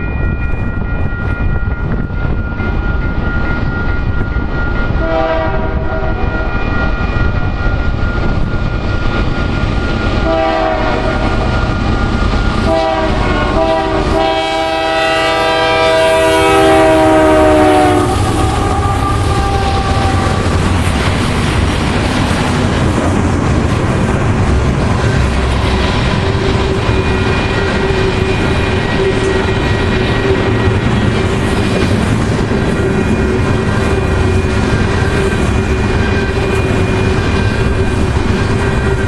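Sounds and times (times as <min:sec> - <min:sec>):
diesel locomotive rumble: 0:00.0 - 0:39.0
train horn blasts: 0:05.0 - 0:06.6, 0:10.2 - 0:11.6, 0:12.6 - 0:20.7, 0:25.8 - 0:31.3.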